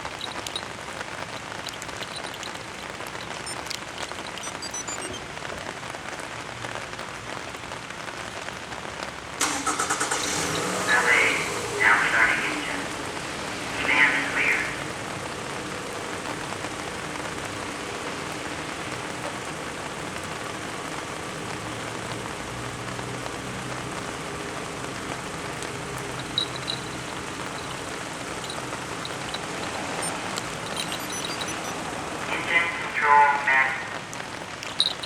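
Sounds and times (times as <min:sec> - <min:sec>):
car engine idling: 0:09.4 - 0:35.0
faint short high tones: 0:26.2 - 0:31.8.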